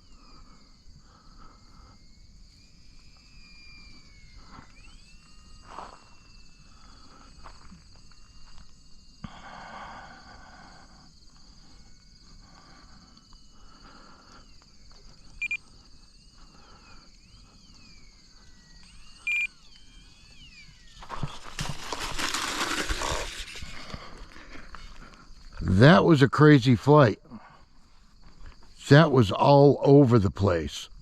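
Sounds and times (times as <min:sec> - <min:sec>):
model plane motor whine: 0:00.0 - 0:09.4, 0:10.4 - 0:25.5
short beeps: 0:15.3 - 0:15.6, 0:18.8 - 0:19.8.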